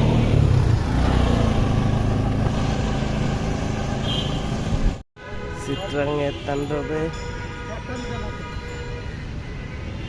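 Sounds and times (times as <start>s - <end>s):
vehicle engine rumbling: 0.0s - 5.0s
street noise: 0.0s - 10.0s.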